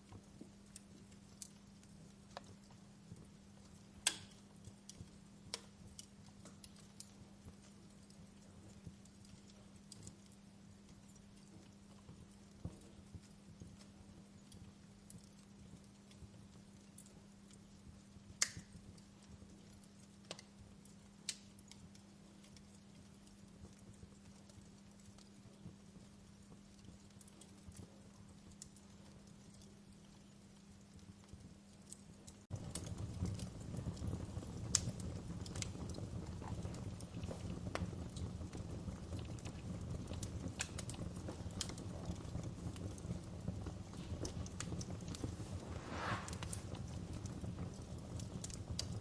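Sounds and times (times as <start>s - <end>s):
wood fire crackling: 0.0s - 49.0s
sharp fire pops: 32.5s - 49.0s
low steady hum: 39.2s - 48.8s.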